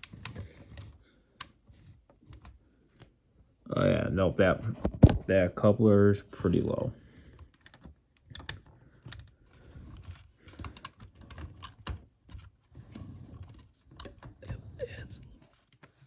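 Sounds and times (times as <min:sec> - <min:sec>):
clicks of small plastic parts: 0:10.5 - 0:12.4.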